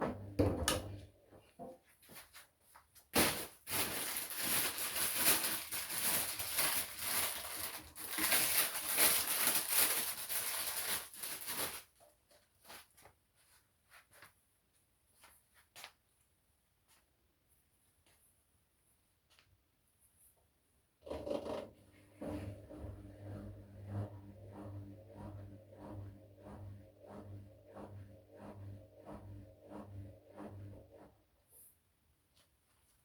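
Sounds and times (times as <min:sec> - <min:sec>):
rustling and crinkling: 0:01.4 - 0:20.5, 0:31.5 - 0:33.0.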